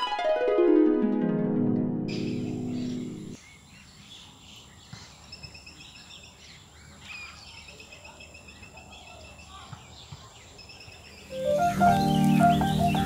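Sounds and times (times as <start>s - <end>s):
piano music: 0.0s - 3.4s, 11.3s - 13.0s
small birds chirping: 2.1s - 13.0s.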